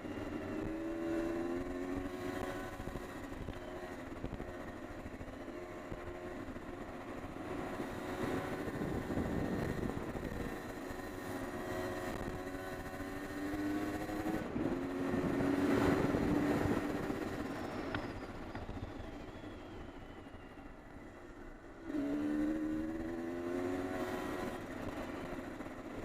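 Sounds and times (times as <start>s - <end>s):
wind noise: 7.4s - 11.1s, 13.4s - 20.2s.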